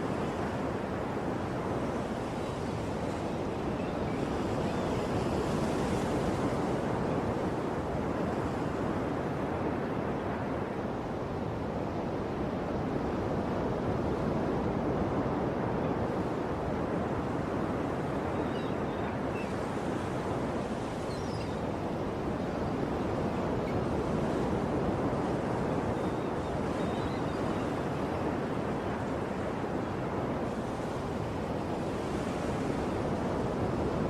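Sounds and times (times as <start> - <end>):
faint high bird chirps: 21.0 - 21.6.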